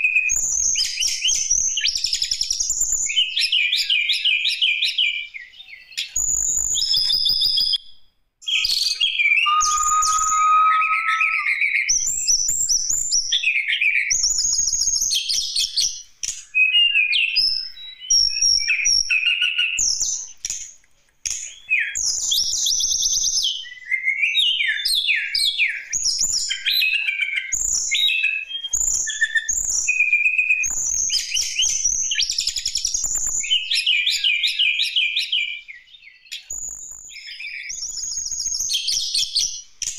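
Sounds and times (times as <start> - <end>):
bird singing chirps and trills: 8.5 - 11.6.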